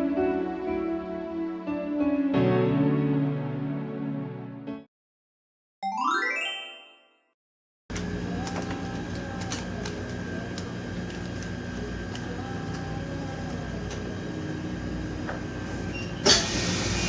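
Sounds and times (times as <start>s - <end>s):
vacuum pump humming: 7.9s - 17.0s.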